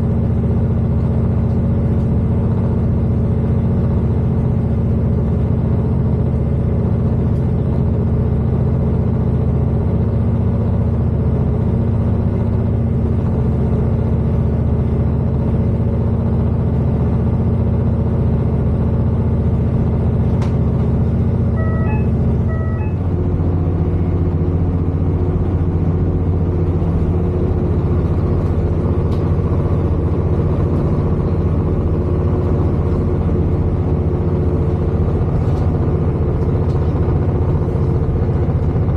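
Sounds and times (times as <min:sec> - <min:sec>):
diesel train engine drone: 0:00.0 - 0:38.9
two-note electronic chime: 0:21.6 - 0:23.1.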